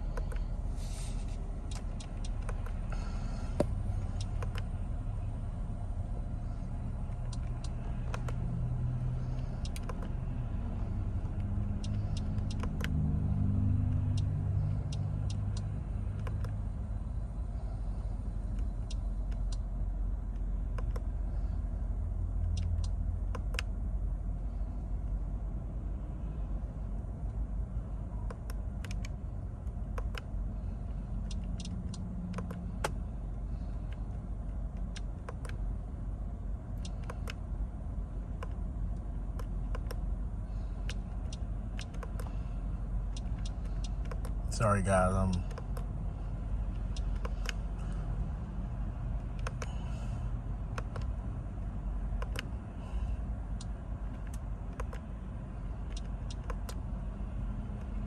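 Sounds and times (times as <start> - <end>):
car cabin rumble: 0.0 - 13.0
steering wheel button clicks: 0.1 - 0.5, 1.7 - 2.8, 3.6 - 4.7, 7.1 - 8.4, 9.4 - 10.2, 11.2 - 13.0, 20.3 - 21.1, 22.4 - 23.7, 28.2 - 30.3, 31.2 - 33.0, 33.8 - 35.6, 36.8 - 37.5, 38.3 - 40.0, 40.8 - 42.4, 43.0 - 45.9, 46.7 - 47.9, 49.1 - 49.8, 50.7 - 51.2, 52.2 - 52.5, 53.5 - 55.1, 55.9 - 56.8.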